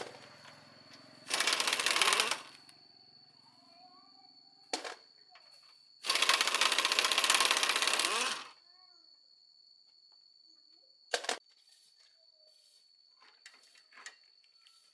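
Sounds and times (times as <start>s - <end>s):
rapid mechanical clicking: 1.2s - 2.7s, 6.0s - 8.5s.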